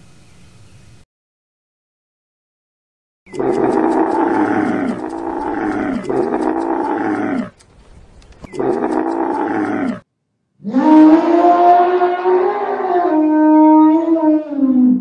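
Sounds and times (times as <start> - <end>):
animal calling: 3.3 - 7.6, 8.4 - 10.0, 10.6 - 15.0.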